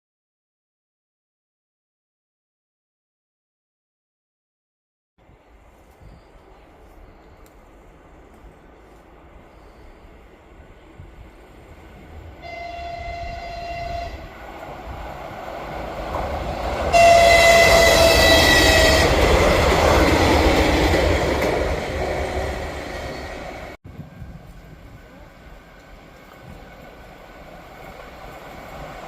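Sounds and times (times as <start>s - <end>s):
train running noise: 5.2s - 29.0s
train horn blasts: 12.4s - 14.4s, 16.8s - 19.5s.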